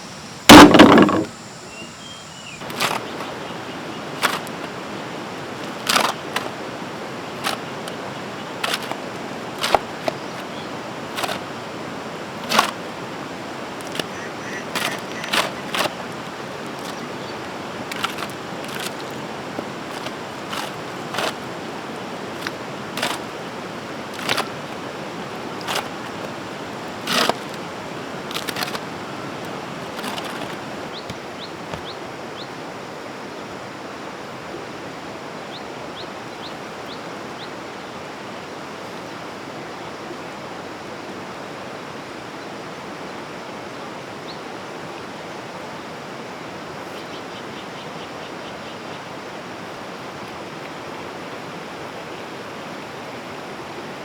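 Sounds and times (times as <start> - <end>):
sharp knocks: 0.5 - 1.3.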